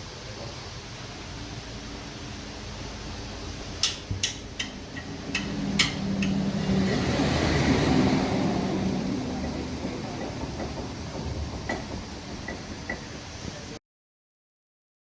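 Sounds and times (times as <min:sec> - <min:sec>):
rush of mechanical noise: 0:00.0 - 0:13.8
tools clinking and knocking: 0:03.8 - 0:06.9, 0:09.4 - 0:13.2.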